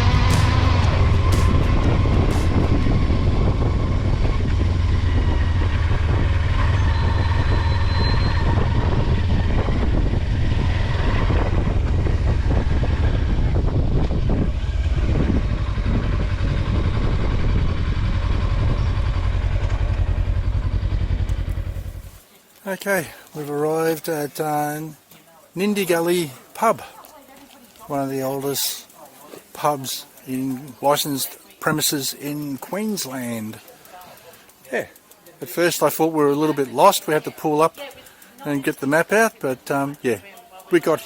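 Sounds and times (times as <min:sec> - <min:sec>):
wind rushing past microphone: 0:00.0 - 0:22.1
motorcycle engine running: 0:00.0 - 0:22.3.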